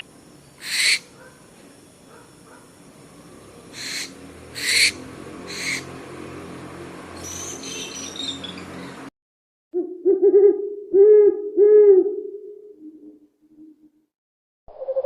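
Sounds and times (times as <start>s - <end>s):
high chittering call: 0.0s - 6.0s, 7.2s - 8.9s
owl harsh calls: 0.6s - 1.2s, 3.7s - 5.9s.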